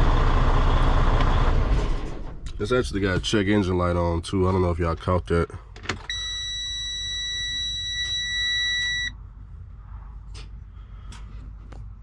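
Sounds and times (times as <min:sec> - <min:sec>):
truck warning buzzer: 0:06.1 - 0:09.1.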